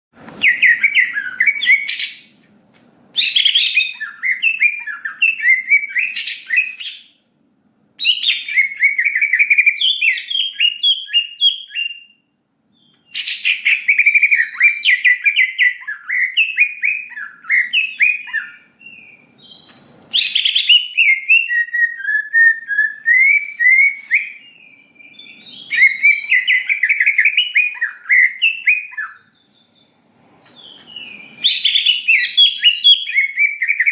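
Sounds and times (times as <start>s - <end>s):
bird singing chirps and whistles: 0.4s - 2.3s, 3.2s - 7.2s, 8.0s - 33.9s
high shrill bird notes: 8.0s - 29.9s, 30.5s - 33.9s.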